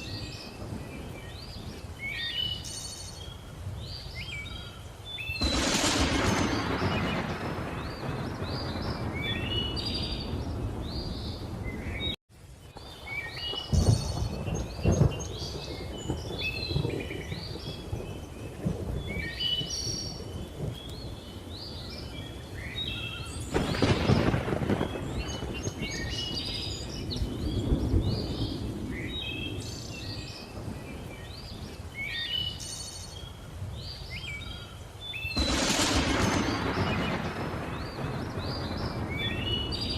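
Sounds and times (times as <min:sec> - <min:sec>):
thunder rumbling: 0:05.3 - 0:12.2, 0:12.8 - 0:31.8, 0:35.3 - 0:39.9
loud thunder clap: 0:05.4 - 0:12.2, 0:13.6 - 0:17.9, 0:23.5 - 0:29.1, 0:35.4 - 0:39.9
birds chirping and whistling: 0:06.2 - 0:12.2, 0:24.9 - 0:39.9.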